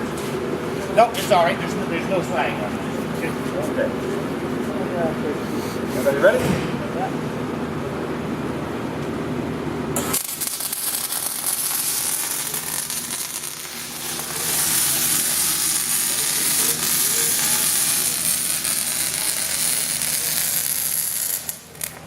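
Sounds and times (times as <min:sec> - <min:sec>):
welding arc sizzling hiss: 0:10.0 - 0:22.0.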